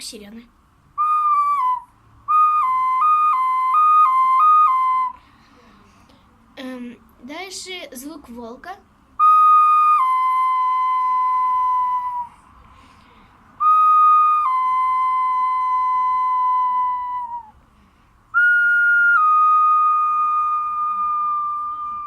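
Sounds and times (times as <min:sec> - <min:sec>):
clay whistle notes: 0:01.0 - 0:05.3, 0:09.2 - 0:12.5, 0:13.6 - 0:17.6, 0:18.3 - 0:22.0.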